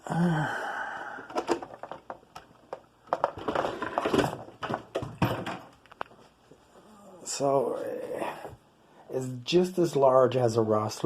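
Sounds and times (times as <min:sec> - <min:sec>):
hard objects clicking and knocking: 0:01.1 - 0:06.2.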